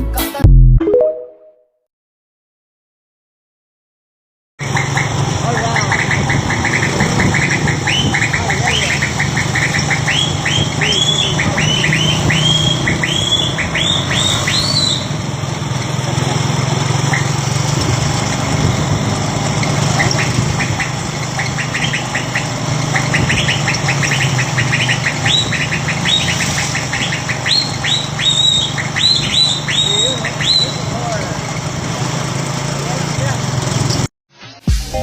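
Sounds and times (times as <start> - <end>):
truck engine humming: 4.6 - 34.1
quick high chirps: 6.7 - 15.2, 21.6 - 30.9.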